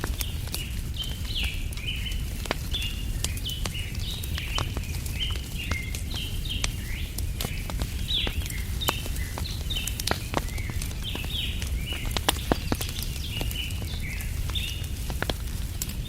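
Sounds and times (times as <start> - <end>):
campfire crackling: 0.0 - 16.0
birds chirping: 0.1 - 15.1.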